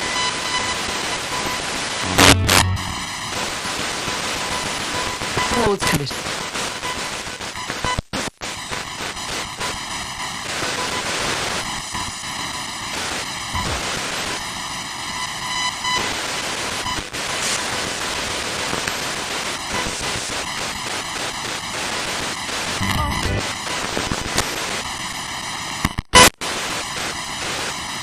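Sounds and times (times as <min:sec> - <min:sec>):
radio static sweeping: 0:02.0 - 0:03.9, 0:13.6 - 0:14.0, 0:22.7 - 0:24.1.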